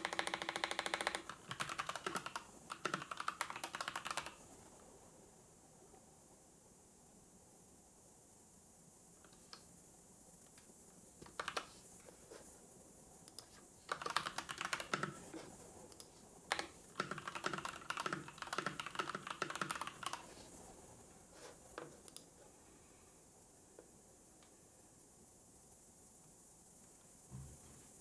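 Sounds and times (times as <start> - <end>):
typing on computer keyboard: 0.0 - 4.4, 11.2 - 11.8, 13.9 - 15.3, 16.0 - 20.5.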